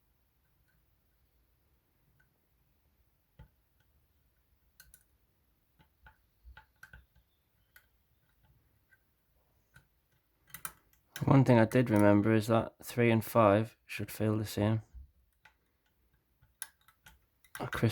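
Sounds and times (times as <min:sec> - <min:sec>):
lock pick clicking in lock: 0:09.7 - 0:11.3, 0:16.4 - 0:17.6.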